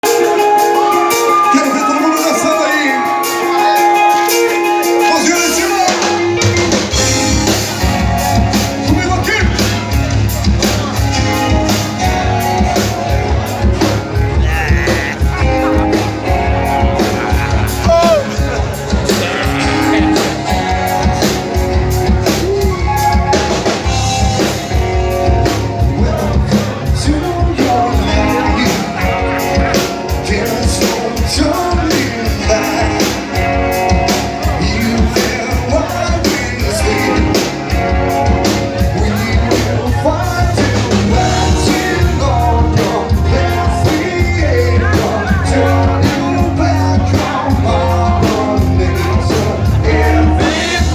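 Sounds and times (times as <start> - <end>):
bass guitar: 0.0 - 50.9
drum kit beat: 0.0 - 50.9
electric guitar: 0.0 - 50.9
person singing: 13.8 - 24.6, 25.4 - 50.9.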